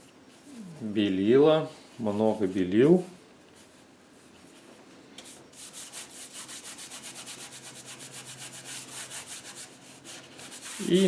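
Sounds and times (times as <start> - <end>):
paintbrush scrubbing paint: 5.6 - 11.0.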